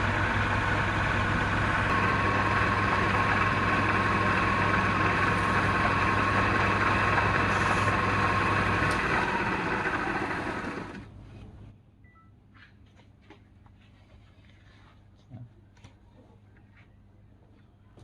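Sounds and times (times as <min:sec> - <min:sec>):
lathe motor hum and whine: 0:00.0 - 0:11.1.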